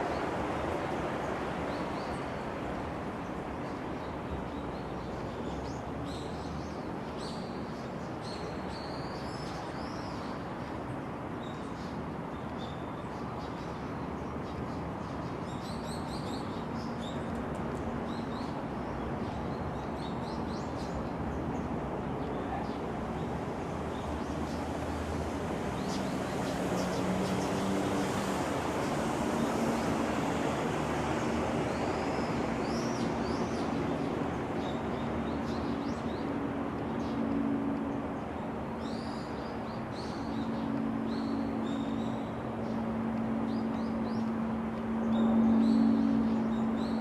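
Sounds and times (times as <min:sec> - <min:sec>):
outdoor background noise: 0:00.0 - 0:47.0.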